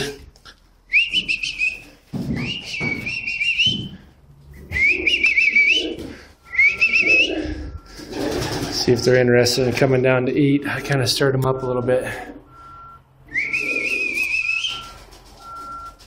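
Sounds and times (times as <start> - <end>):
person whistling warbling whistles: 0.9 - 4.0, 4.6 - 8.0, 13.3 - 14.8.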